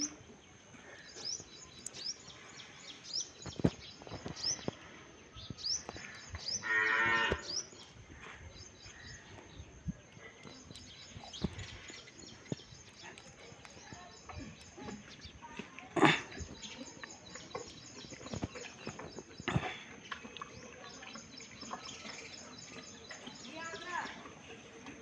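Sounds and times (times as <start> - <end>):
small birds chirping: 0.0 - 25.0
cow mooing: 6.6 - 7.5.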